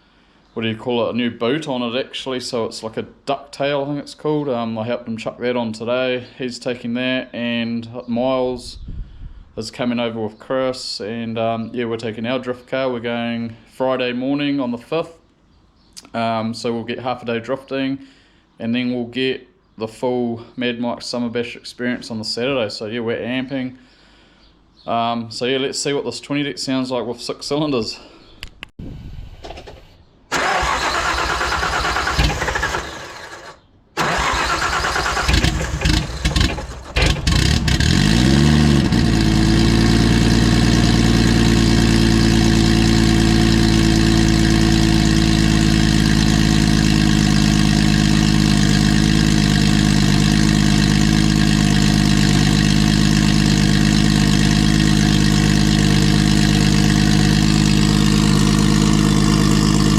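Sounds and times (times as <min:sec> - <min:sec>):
engine starter cranking: 0:29.4 - 0:39.3
car engine idling: 0:30.4 - 0:59.9.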